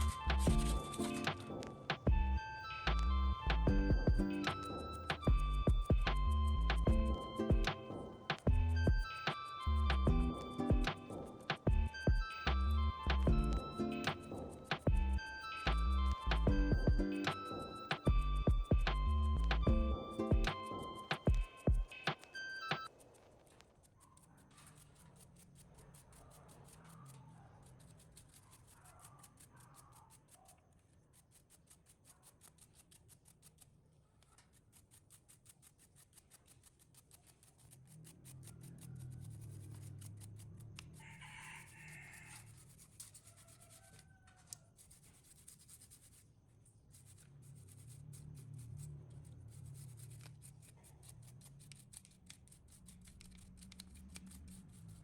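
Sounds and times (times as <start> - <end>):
low steady hum: 9.8 - 11.1, 11.7 - 17.2.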